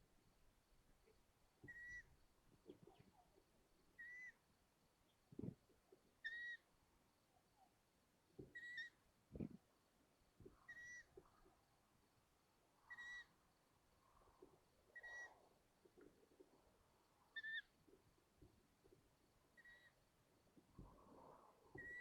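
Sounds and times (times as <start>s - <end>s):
owl chicks squeaky begging calls: 1.7s - 2.1s, 4.0s - 4.4s, 6.2s - 6.6s, 8.6s - 9.0s, 10.7s - 11.1s, 12.9s - 13.3s, 15.0s - 15.4s, 17.3s - 17.7s, 19.6s - 20.0s, 21.8s - 22.0s.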